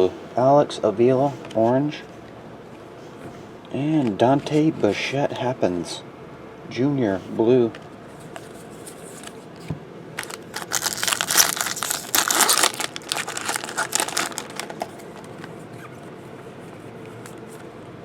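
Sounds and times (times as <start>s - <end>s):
card pack wrapper tearing: 10.2s - 15.4s.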